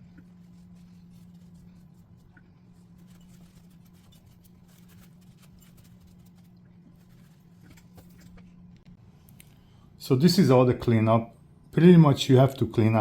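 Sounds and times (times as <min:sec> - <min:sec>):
faint scratching and ticks: 0:00.0 - 0:09.0
steady low hum: 0:00.0 - 0:13.0.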